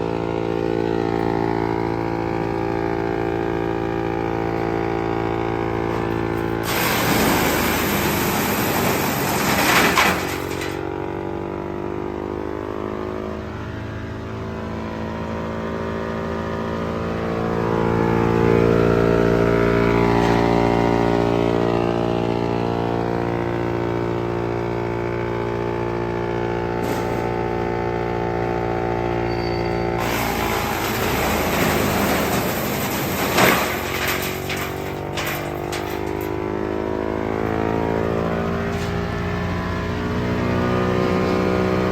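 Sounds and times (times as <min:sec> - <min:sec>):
wood chipper engine hum: 0:00.0 - 0:13.4, 0:14.6 - 0:41.9
rough grinding noise: 0:05.7 - 0:10.9, 0:29.5 - 0:41.9.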